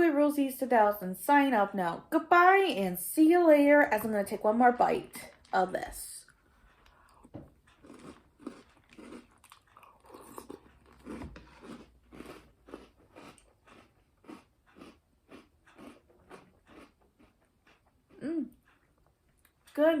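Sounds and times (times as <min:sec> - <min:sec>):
chewing cereal crunches: 0:05.0 - 0:18.2.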